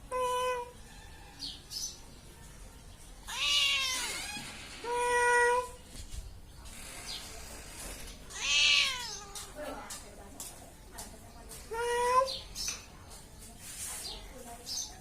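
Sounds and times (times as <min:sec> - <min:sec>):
cat meowing: 0:03.3 - 0:05.7, 0:08.3 - 0:09.6.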